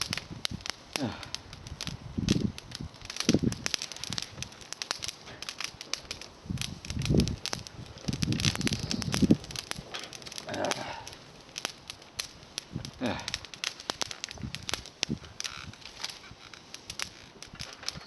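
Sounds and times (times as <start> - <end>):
campfire crackling and popping: 0.0 - 18.0
soft rustling: 13.7 - 18.0.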